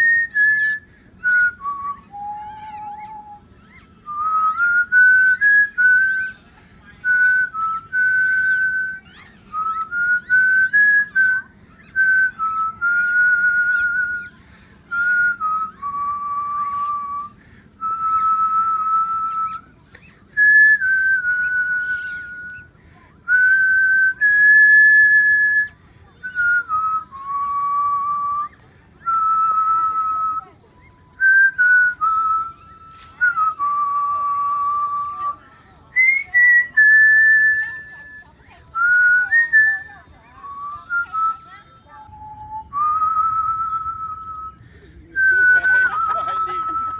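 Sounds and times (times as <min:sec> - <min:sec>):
person whistling a slow tune: 0:00.0 - 0:06.4, 0:07.0 - 0:46.9.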